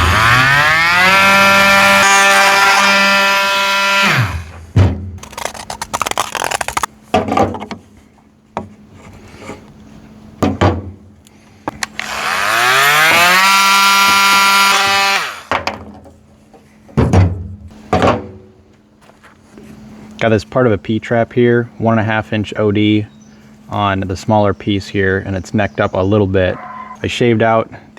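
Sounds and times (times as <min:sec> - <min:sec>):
electric power tool whining: 0:00.0 - 0:04.5, 0:11.8 - 0:15.5.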